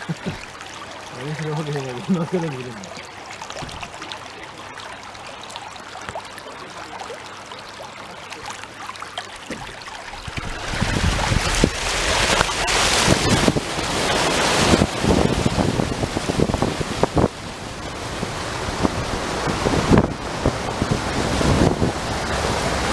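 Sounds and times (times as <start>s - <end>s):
rushing water: 0.0s - 22.9s
wind gusts buffeting microphone: 10.1s - 22.9s.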